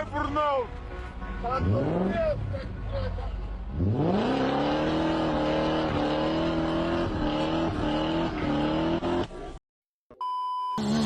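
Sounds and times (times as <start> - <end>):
car engine revving high: 1.6 - 2.4, 3.7 - 9.5.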